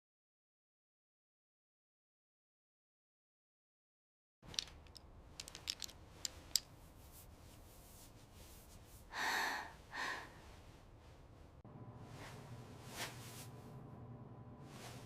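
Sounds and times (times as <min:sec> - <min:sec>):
breathy gasps: 0:09.1 - 0:10.6.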